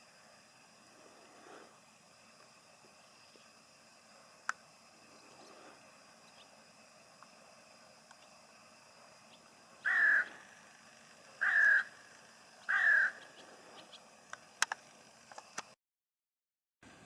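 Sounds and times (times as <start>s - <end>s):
crow cawing: 9.8s - 10.6s, 11.4s - 13.4s.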